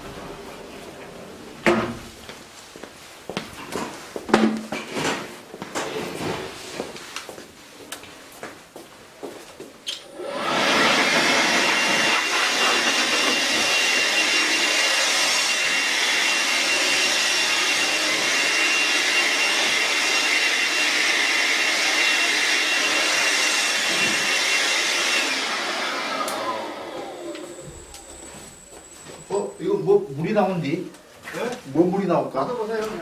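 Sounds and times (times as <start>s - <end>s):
electric blower motor whining: 10.0s - 28.3s.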